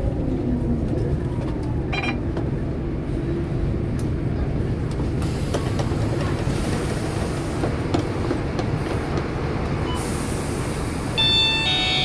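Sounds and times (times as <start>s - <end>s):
bus diesel engine rumble: 0.0s - 12.0s.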